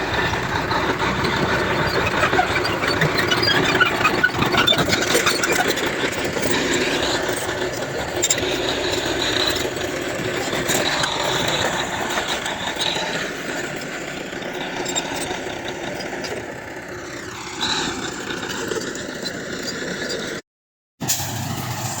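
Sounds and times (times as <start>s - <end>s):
heavy machinery diesel engine: 0.0s - 20.4s, 21.0s - 22.0s.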